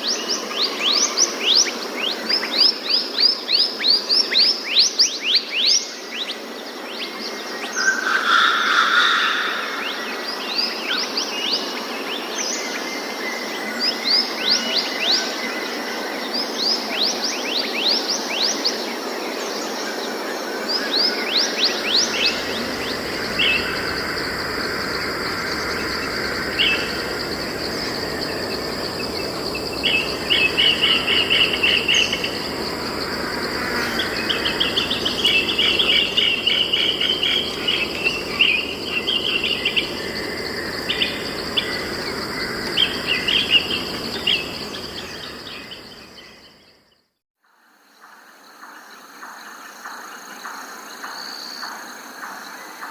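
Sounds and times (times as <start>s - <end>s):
birds chirping and trilling: 20.2s - 46.9s
high-pitched insect drone: 21.3s - 46.6s.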